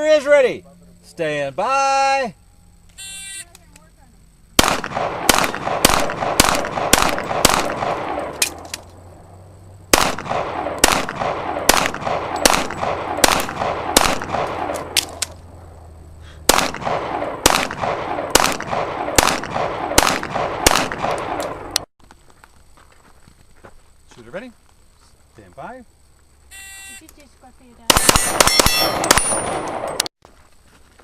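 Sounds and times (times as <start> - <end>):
pistol shots with echo: 4.6 - 8.6, 9.9 - 15.2, 16.5 - 21.8, 27.9 - 30.0.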